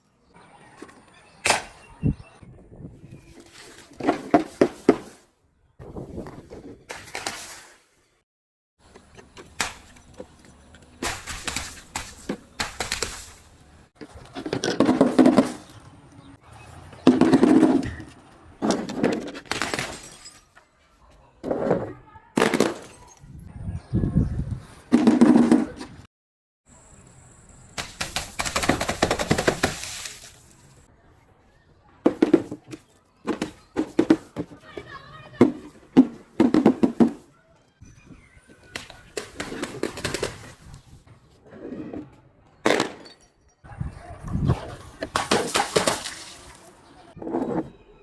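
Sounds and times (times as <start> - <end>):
glass clinking and breaking: 19.6 - 20.6, 42.8 - 43.7.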